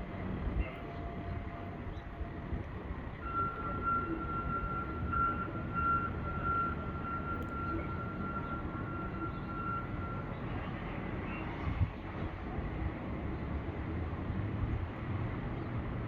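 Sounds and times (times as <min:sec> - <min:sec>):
vehicle engines rumbling: 0:00.0 - 0:16.0.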